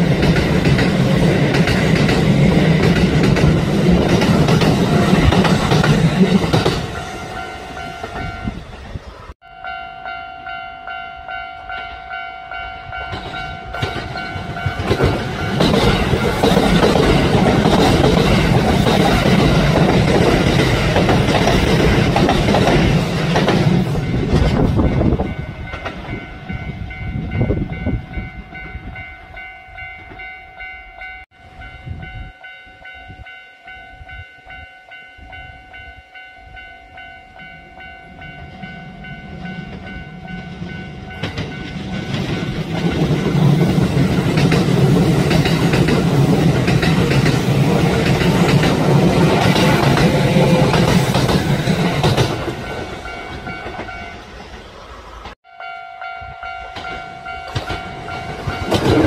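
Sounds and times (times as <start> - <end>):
train running on rails: 0.0 - 59.0
steady high tone: 4.8 - 17.8.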